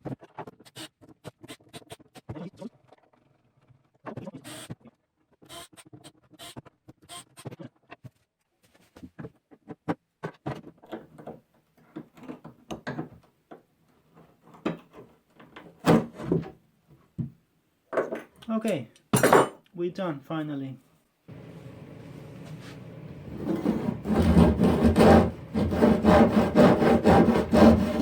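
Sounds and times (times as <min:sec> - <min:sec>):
scrapes and knocks on wood: 0:22.4 - 0:28.0.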